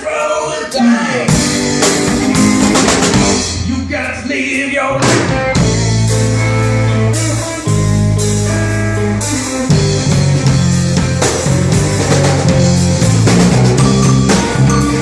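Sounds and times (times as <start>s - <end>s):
rock band playing: 0.7s - 15.0s
drum hits: 1.3s - 4.2s, 4.9s - 6.3s, 9.8s - 15.0s.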